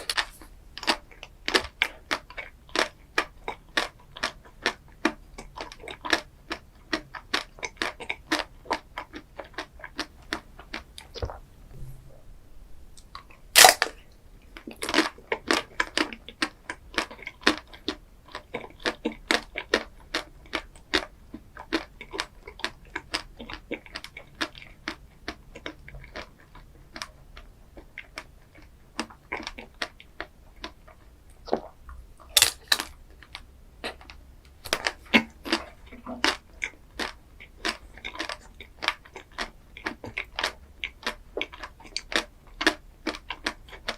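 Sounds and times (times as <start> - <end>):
chewing and crunching: 0.0 - 11.6, 13.0 - 43.9
loud crack: 11.7 - 14.0, 32.4 - 32.9.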